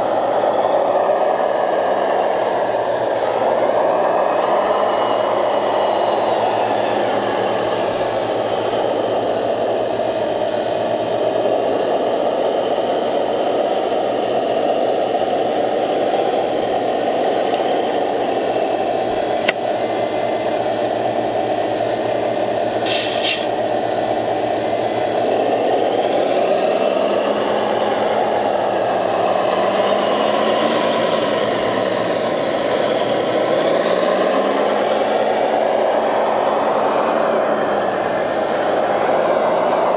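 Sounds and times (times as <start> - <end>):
electric motors and hydraulic pumps whining: 0.0 - 39.9
sharp click: 19.4 - 19.8, 22.8 - 23.5
short hiss: 22.8 - 23.5.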